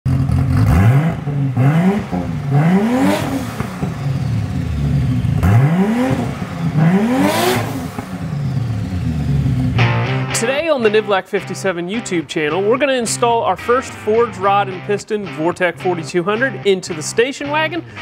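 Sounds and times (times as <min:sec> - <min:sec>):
car engine idling and revving: 0:00.1 - 0:10.3.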